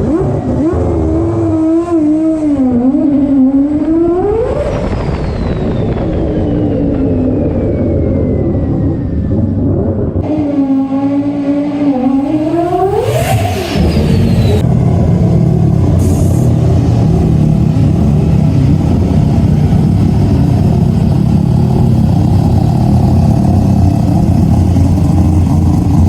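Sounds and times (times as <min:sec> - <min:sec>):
car engine idling: 0:14.6 - 0:26.0.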